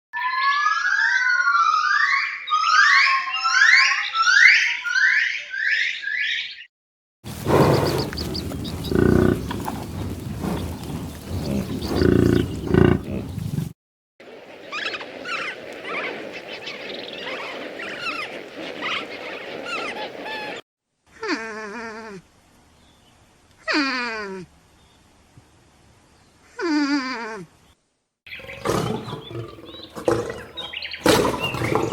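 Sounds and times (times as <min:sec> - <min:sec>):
falling pitched animal call: 0:07.3 - 0:13.5
short high chirping calls: 0:07.3 - 0:13.6
loud low animal calls: 0:07.3 - 0:13.7, 0:28.3 - 0:31.9.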